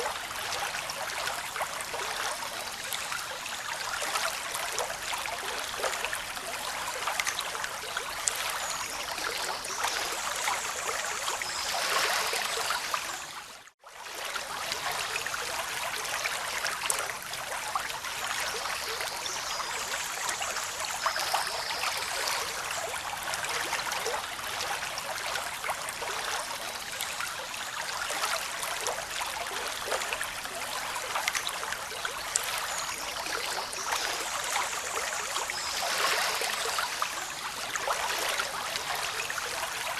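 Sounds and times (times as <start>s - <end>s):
rushing splashing water: 0.0s - 13.3s, 27.7s - 39.9s.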